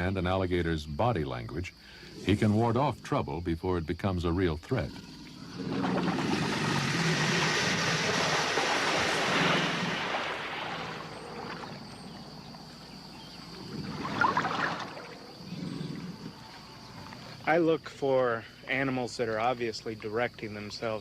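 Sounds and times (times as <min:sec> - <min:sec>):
water splashing and sloshing: 0:05.2 - 0:17.4.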